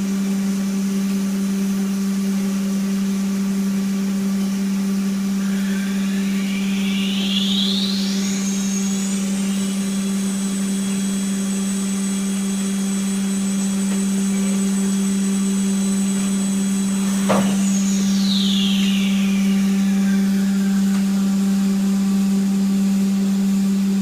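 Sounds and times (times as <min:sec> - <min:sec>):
low machine hum: 0:00.0 - 0:24.0
machine spindle whine: 0:00.0 - 0:24.0
brief thump: 0:17.1 - 0:17.7.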